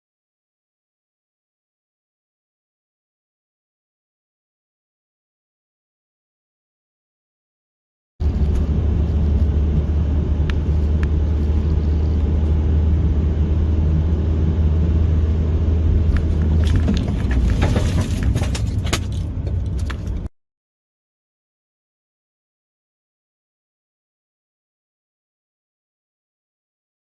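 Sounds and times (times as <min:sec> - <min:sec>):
road and engine rumble: 0:08.2 - 0:20.3
sharp knocks and clatter: 0:16.2 - 0:20.3.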